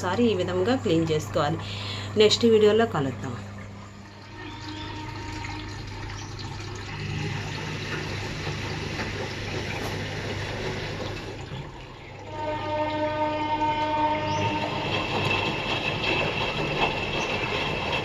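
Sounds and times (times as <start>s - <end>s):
washing machine hum: 0.0s - 18.0s
water sloshing in washing machine: 0.0s - 18.0s.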